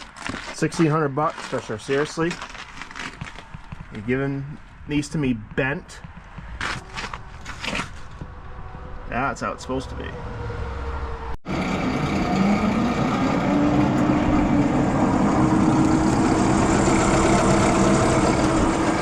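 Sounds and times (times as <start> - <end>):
truck engine running: 11.4 - 19.0.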